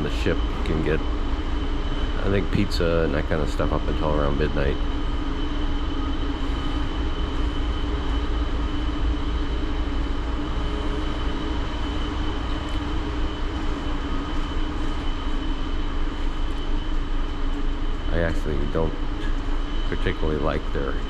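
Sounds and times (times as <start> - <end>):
deep machinery rumble: 0.0 - 21.0
steady high whine: 0.0 - 21.0
ventilation fans droning: 0.0 - 21.0.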